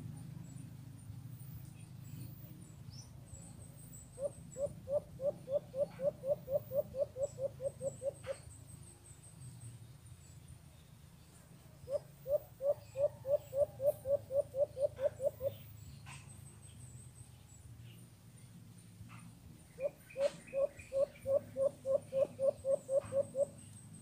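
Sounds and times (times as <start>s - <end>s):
bird hooting: 4.1s - 8.5s, 11.8s - 16.2s, 19.8s - 23.7s.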